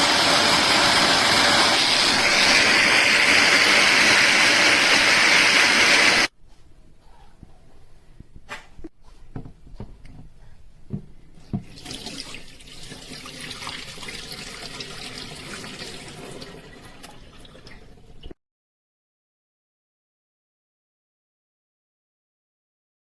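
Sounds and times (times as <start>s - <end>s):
water running from tap: 0.0s - 6.3s, 11.6s - 18.4s.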